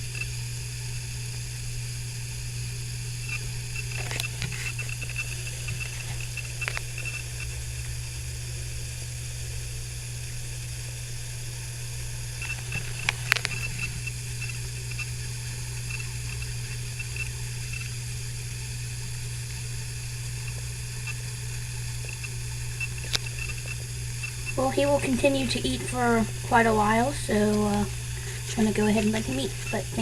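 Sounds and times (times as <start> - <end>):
low hum and hiss: 0.0 - 30.0
lizard eating wet mouth clicks: 12.4 - 15.0.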